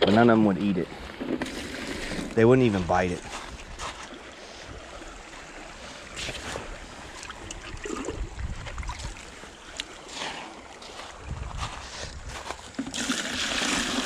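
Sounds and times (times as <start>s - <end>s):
creek water sloshing and trickling: 0.0s - 14.0s
small water splashes: 1.1s - 14.0s.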